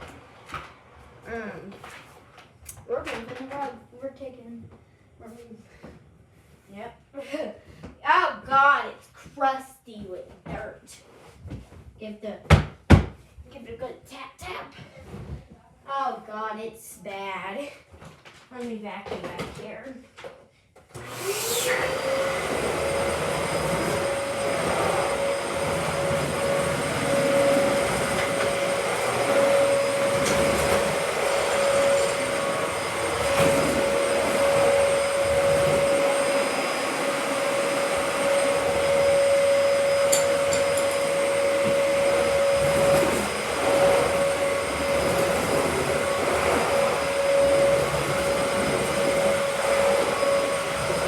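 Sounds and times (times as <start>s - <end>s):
vacuum cleaner motor whine: 21.0s - 51.0s.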